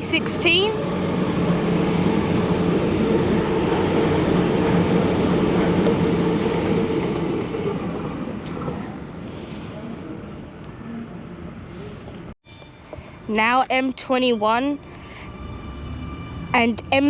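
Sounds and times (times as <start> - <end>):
train wheels rumbling on rail: 0.0 - 9.1.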